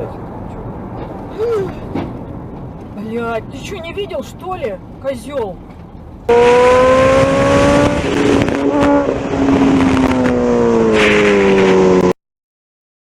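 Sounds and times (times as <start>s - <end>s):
motor vehicle pitched tone: 4.8s - 12.2s.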